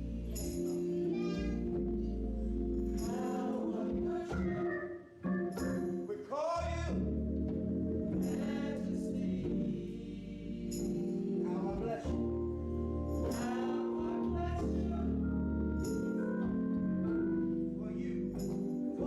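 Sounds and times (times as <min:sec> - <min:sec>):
sustained instrumental chords: 0:00.0 - 0:04.3, 0:06.9 - 0:19.0
church choir singing gospel: 0:00.0 - 0:19.0.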